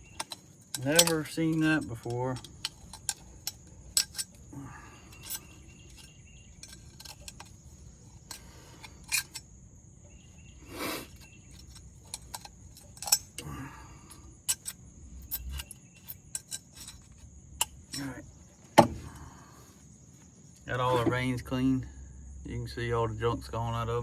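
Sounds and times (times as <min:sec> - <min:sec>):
high insect drone: 0:00.0 - 0:24.0
metal scrape: 0:14.5 - 0:18.2.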